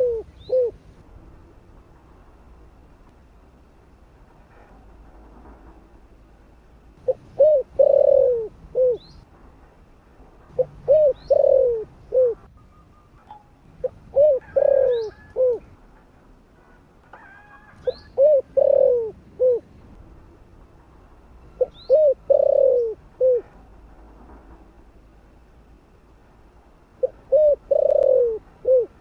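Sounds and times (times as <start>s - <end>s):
dove cooing: 0.0s - 0.8s, 7.0s - 9.1s, 10.5s - 12.5s, 13.8s - 15.8s, 17.1s - 19.7s, 21.6s - 23.6s, 27.0s - 29.0s.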